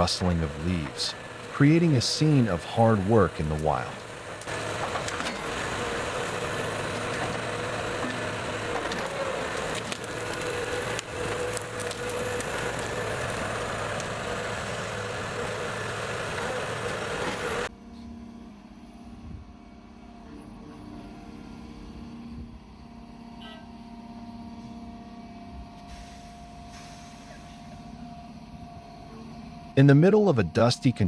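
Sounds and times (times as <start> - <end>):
diesel engine running under load: 0.0 - 17.7
hydraulic noise: 0.0 - 17.7
low engine hum: 0.0 - 17.8.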